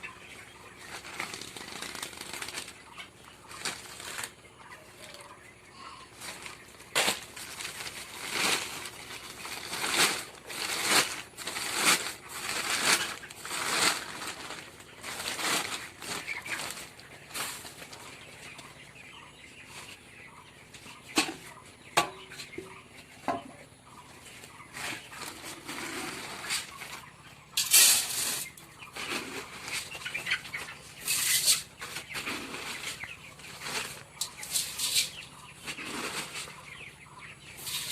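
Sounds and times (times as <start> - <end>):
chickens clucking: 0.0 - 37.9
chickens flapping wings: 0.5 - 4.4, 6.2 - 18.8.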